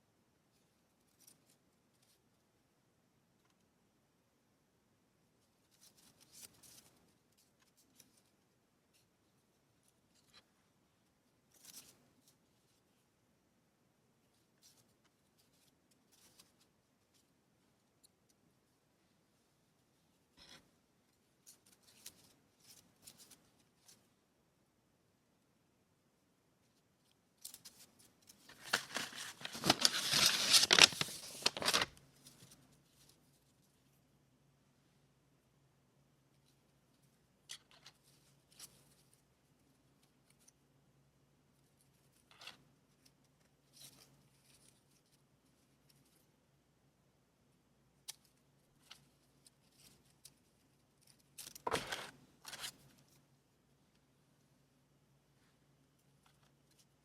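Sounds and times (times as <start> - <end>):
paper rustling: 27.4 - 33.3, 51.0 - 53.0.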